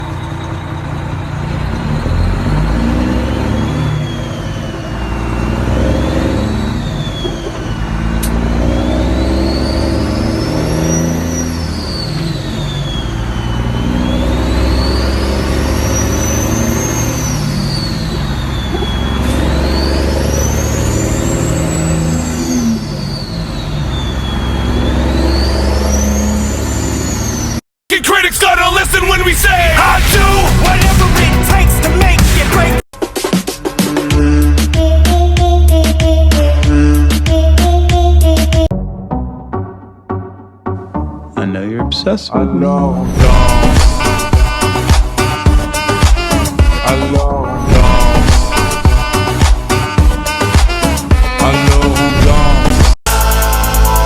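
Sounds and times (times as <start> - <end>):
truck engine revving: 0.0 - 41.2, 42.8 - 54.0
high whine rising and falling: 28.3 - 32.8, 43.0 - 51.1.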